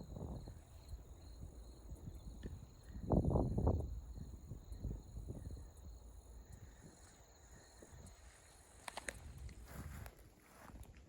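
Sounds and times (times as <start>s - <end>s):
high insect drone: 0.0s - 9.4s.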